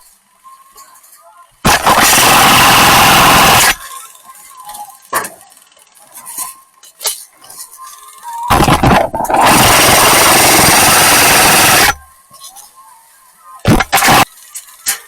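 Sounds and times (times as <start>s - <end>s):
airsoft gun burst: 1.6s - 3.8s, 8.5s - 12.0s, 13.7s - 14.3s.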